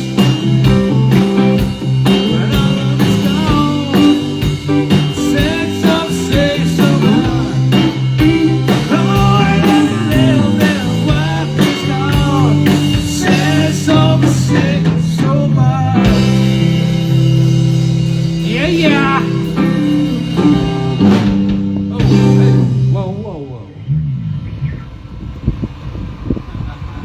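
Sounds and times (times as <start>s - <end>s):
live blues-rock band: 0.0s - 23.3s.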